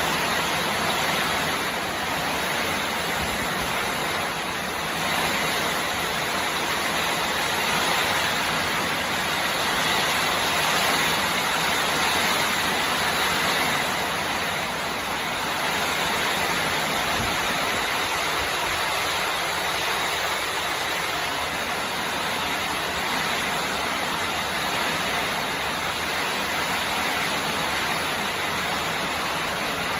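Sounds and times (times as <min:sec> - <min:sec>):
heavy rain pouring: 0:00.0 - 0:29.9.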